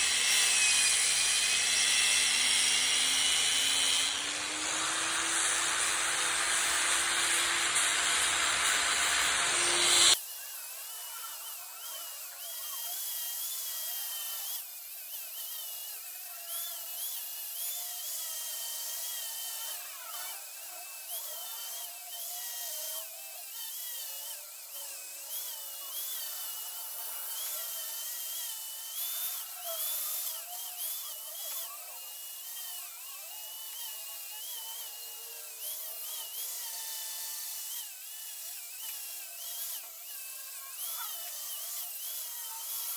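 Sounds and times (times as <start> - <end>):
rotary power tool carving wood: 0.0 - 42.9
loud hiss: 4.5 - 10.2.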